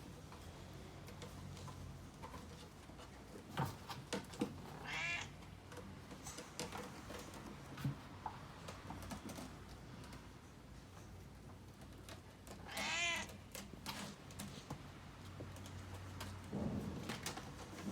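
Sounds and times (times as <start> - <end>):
cat meowing: 4.8 - 5.4, 12.6 - 13.4.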